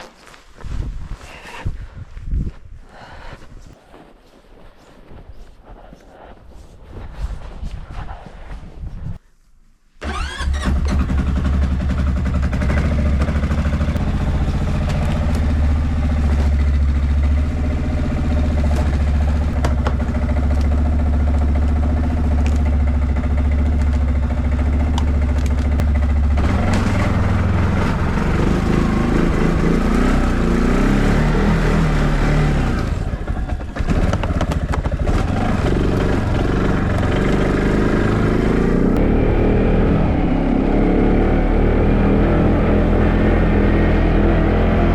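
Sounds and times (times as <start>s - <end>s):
tractor engine running: 10.0s - 41.3s.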